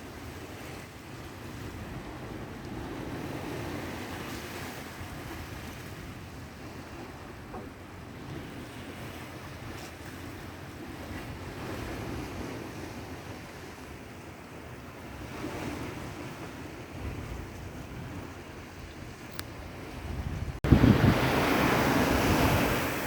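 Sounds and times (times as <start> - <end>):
sea waves washing: 14.7 - 23.0
wind buffeting microphone: 14.9 - 23.0.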